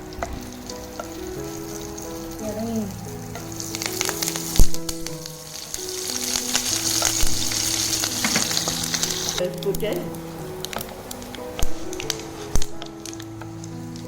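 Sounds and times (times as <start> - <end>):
seeds sizzling in hot oil: 0.0 - 14.0
utensil knocking on pan: 8.2 - 8.8.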